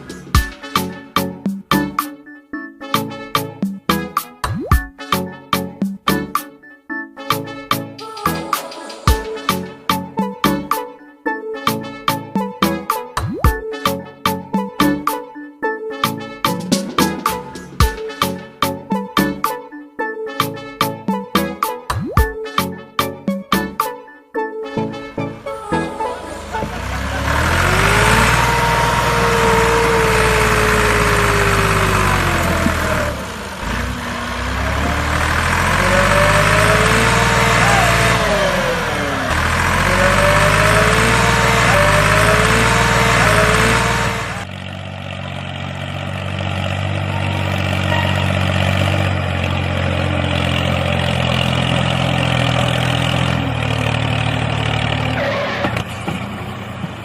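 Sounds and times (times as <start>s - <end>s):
model tractor motor whining: 26.0s - 57.0s.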